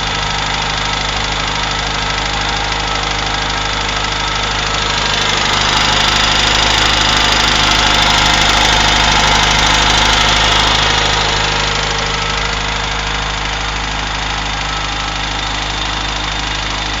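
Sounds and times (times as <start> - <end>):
car engine running: 0.0 - 17.0
rapid engine knock: 0.0 - 17.0.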